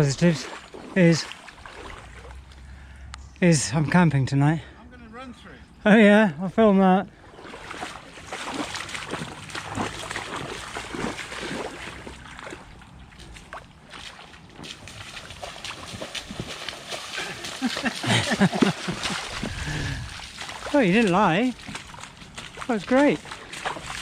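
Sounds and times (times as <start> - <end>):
boots splashing through mud: 0.0 - 2.8, 7.2 - 24.0.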